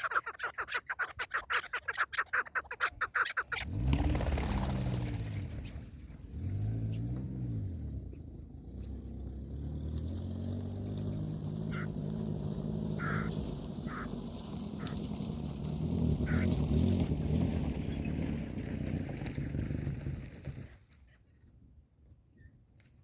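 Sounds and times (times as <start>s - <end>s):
engine revving: 3.6s - 20.7s.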